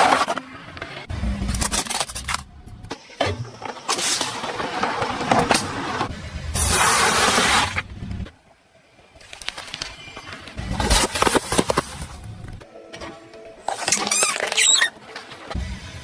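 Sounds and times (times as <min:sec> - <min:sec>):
tyres crushing objects: 0:01.1 - 0:07.9, 0:10.6 - 0:15.6.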